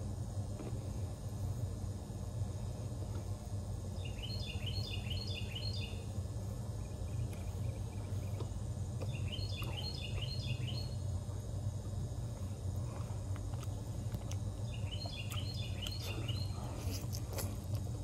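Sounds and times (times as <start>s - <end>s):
low outdoor rumble: 0.0s - 18.0s
songbird chirping: 4.0s - 6.1s, 6.8s - 11.0s, 14.6s - 16.6s.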